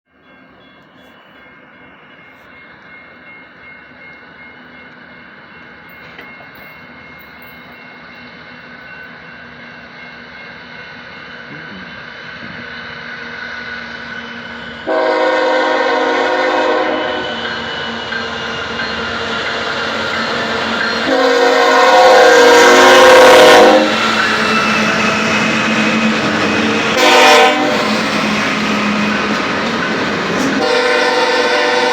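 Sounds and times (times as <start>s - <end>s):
train air horn blasts: 14.8s - 17.4s, 21.0s - 24.0s, 27.0s - 27.9s, 30.6s - 31.9s.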